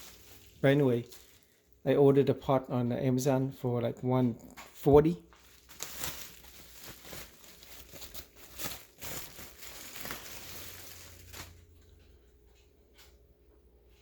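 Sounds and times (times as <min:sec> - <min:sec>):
rustling and crinkling handling: 0:00.0 - 0:01.8, 0:04.4 - 0:13.2.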